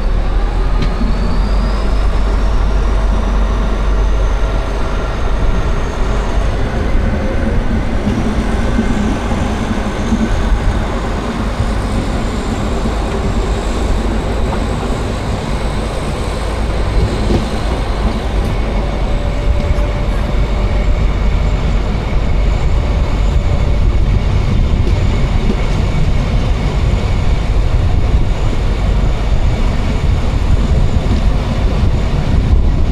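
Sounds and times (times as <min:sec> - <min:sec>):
train wheels rumbling on rails: 0:00.0 - 0:32.9.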